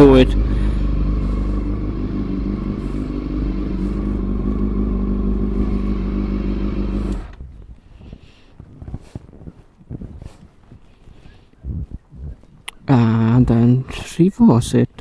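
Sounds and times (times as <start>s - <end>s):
motorcycle engine idling: 0.0s - 7.6s.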